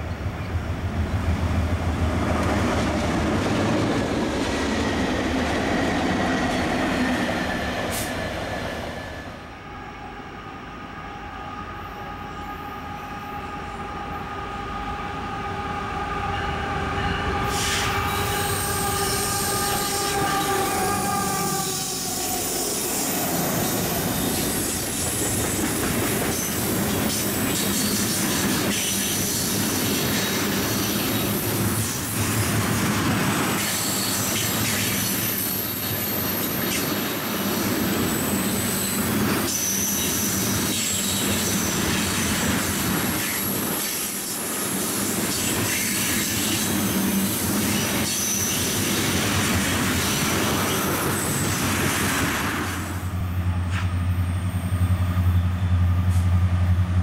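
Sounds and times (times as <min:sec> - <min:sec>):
train rolling by: 0:00.0 - 0:57.0
locomotive air horn chord: 0:11.2 - 0:22.1.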